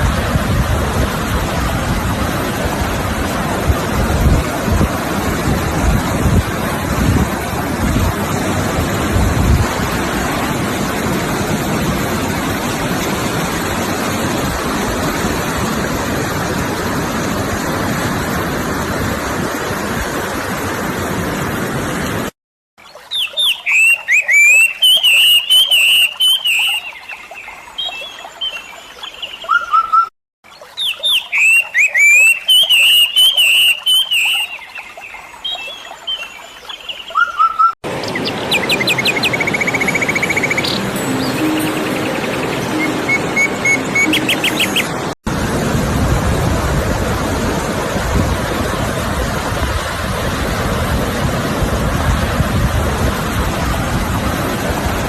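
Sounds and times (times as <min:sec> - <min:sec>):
sea surf rushing: 0:00.0 - 0:22.3, 0:37.8 - 0:55.0
wind: 0:00.0 - 0:55.0
songbird singing: 0:22.8 - 0:45.1.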